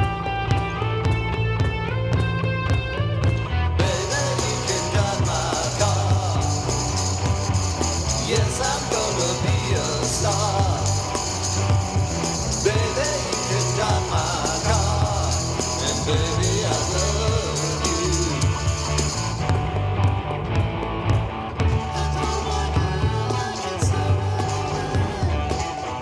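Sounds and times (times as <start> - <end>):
cajon: 0.0 - 26.0
electric bass: 0.0 - 26.0.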